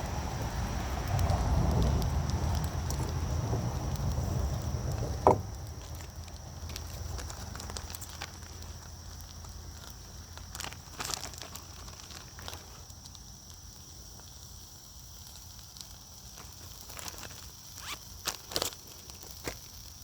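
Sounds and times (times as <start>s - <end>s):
food frying in a pan: 0.0s - 20.0s.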